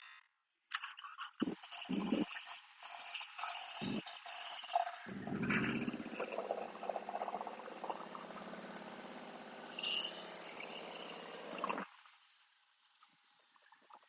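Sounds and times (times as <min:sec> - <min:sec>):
motorcycle engine running: 0:05.0 - 0:11.8.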